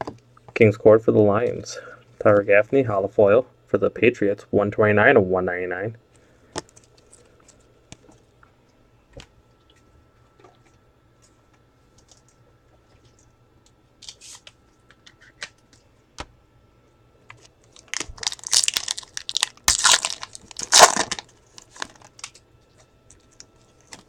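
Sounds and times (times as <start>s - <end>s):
wrapper tearing and crinkling: 17.7s - 22.4s.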